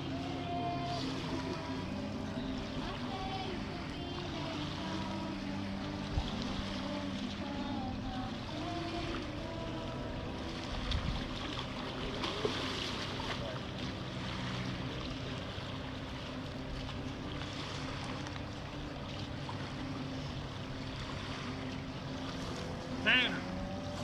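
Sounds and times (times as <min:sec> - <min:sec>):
low hum: 0:00.0 - 0:24.0
water sloshing and lapping: 0:00.0 - 0:24.0.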